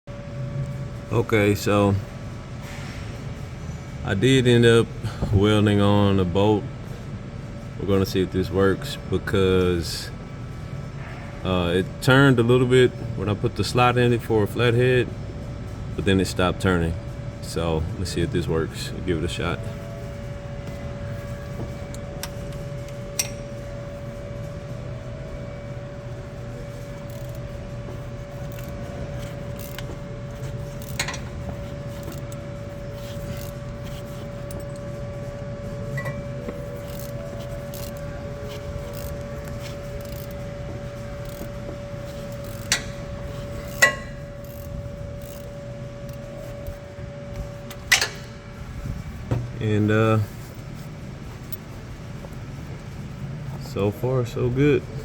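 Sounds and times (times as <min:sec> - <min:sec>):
steady hum: 0:00.1 - 0:55.0
wrench clicking and scraping: 0:21.9 - 0:23.4, 0:26.8 - 0:34.8, 0:36.0 - 0:46.8, 0:47.7 - 0:48.3.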